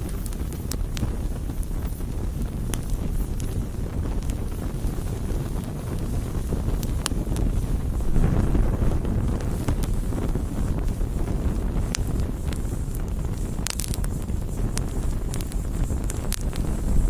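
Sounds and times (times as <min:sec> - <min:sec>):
campfire flames rumbling: 0:00.0 - 0:17.0
fire crackling and popping: 0:00.0 - 0:17.0.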